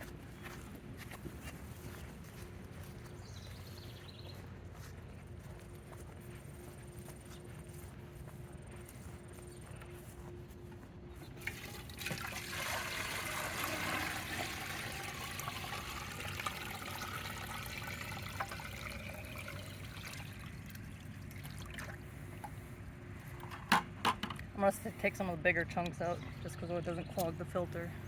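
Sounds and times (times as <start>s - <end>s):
water poured into a container: 11.4s - 22.0s.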